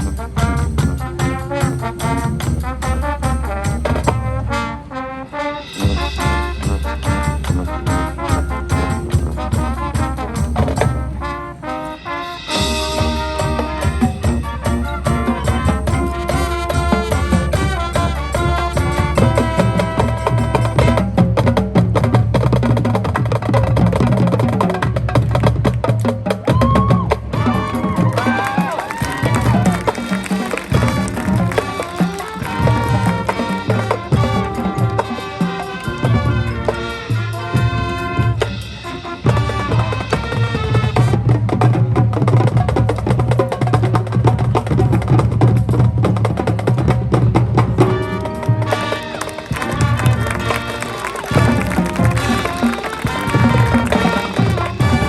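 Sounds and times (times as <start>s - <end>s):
marching band wind chords: 0.0s - 22.8s, 27.2s - 42.2s, 47.3s - 55.0s.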